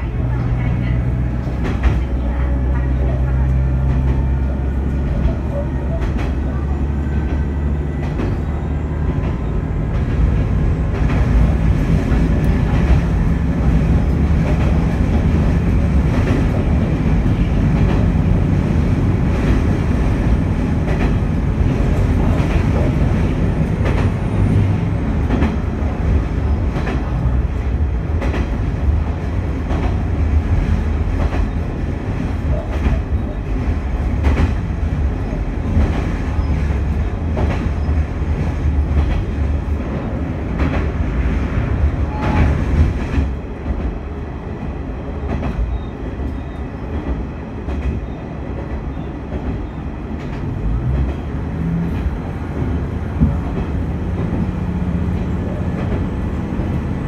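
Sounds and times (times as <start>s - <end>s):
railcar engine and wheels rumble: 0.0s - 57.0s.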